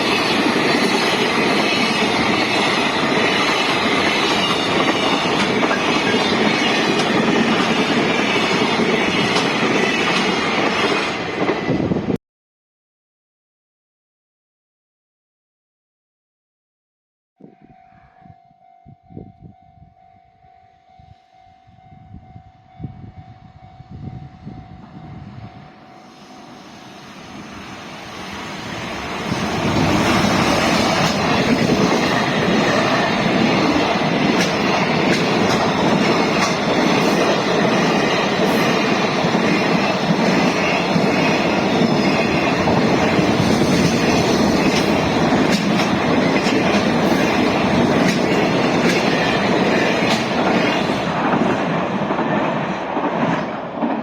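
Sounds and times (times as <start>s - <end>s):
freight train passing: 0.0s - 12.2s, 18.2s - 54.0s.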